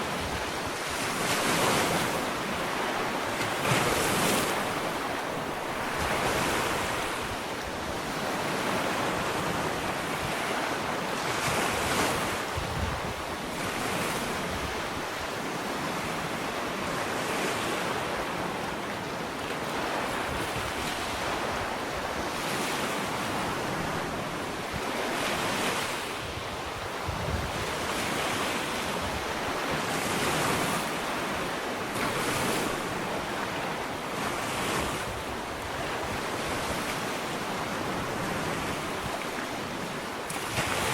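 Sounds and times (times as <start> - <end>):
wind on microphone: 0.0 - 18.5, 19.8 - 40.9
ocean waves breaking on beach: 0.0 - 40.9.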